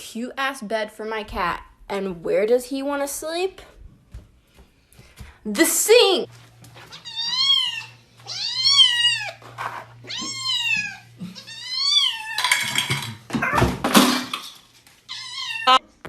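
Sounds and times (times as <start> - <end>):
cat meowing: 6.9 - 9.4, 10.0 - 12.6, 15.1 - 15.8.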